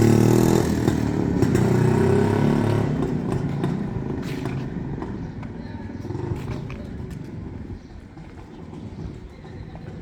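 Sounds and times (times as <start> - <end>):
motorcycle engine running: 0.0 - 4.4.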